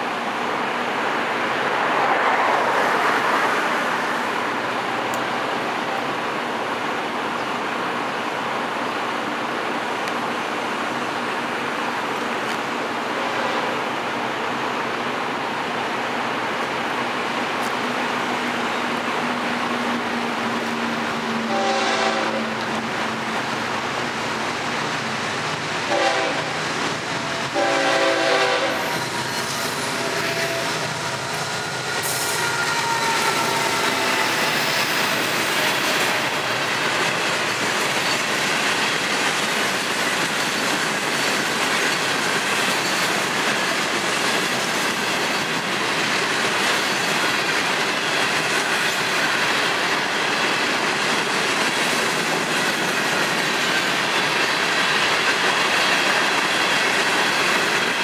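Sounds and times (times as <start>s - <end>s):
train wheels rumbling on rail: 0.0s - 58.0s
train horn: 21.4s - 22.6s, 25.8s - 26.6s, 27.3s - 29.1s, 29.8s - 30.9s, 32.0s - 34.6s.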